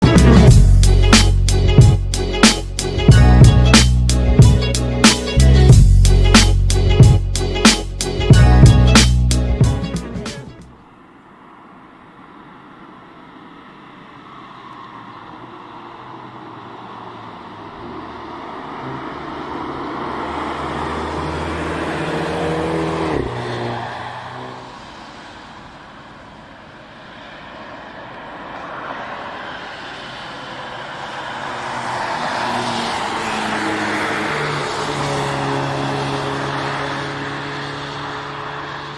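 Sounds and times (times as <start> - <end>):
car engine passing at speed: 11.1 - 38.9.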